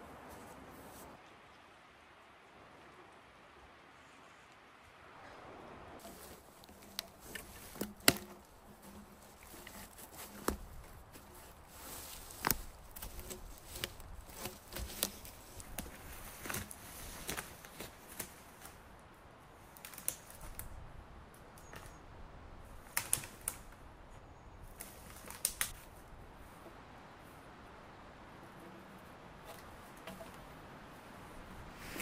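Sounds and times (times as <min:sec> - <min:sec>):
faint steady background noise: 0:00.0 - 0:32.0
sharp clicks and light knocks: 0:06.0 - 0:11.0, 0:22.8 - 0:23.8.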